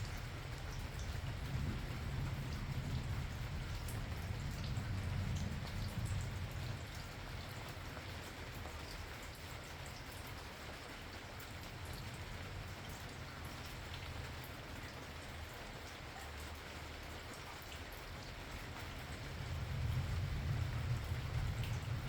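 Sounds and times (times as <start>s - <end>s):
distant thunder rumble: 0.0s - 7.9s, 18.9s - 22.0s
raindrops ticking on surfaces: 0.0s - 22.0s
steady rain falling: 0.0s - 22.0s.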